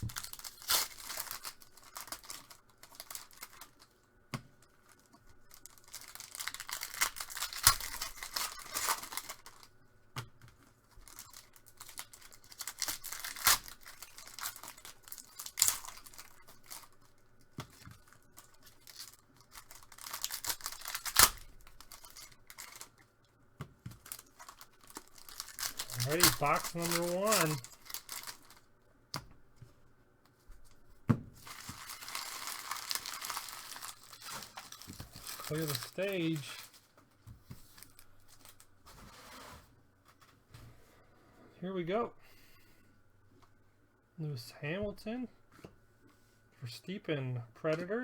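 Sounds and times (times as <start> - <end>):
foil wrappers tearing and crinkling: 0.0 - 4.0, 4.6 - 9.8, 10.8 - 23.0, 23.9 - 28.7, 31.4 - 37.0, 37.6 - 39.0.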